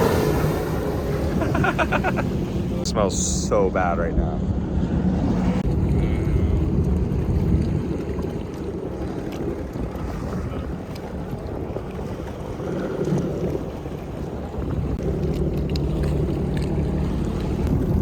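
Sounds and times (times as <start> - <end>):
water moving around hull: 0.0 - 18.0
wind buffeting microphone: 0.0 - 18.0
small boat motor running: 5.6 - 18.0.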